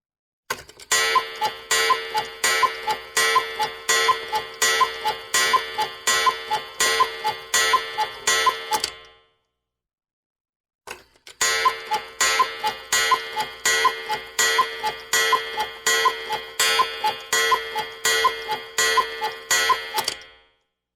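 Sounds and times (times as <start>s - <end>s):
cuckoo clock ticking: 0.8s - 9.0s, 11.4s - 20.3s.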